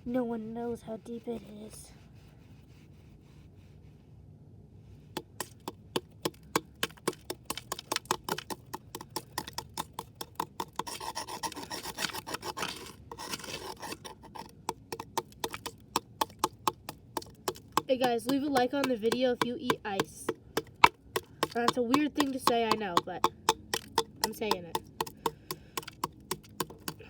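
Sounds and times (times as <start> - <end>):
ice cracking under chipping: 5.2 - 27.0
ice scraping: 10.8 - 14.6.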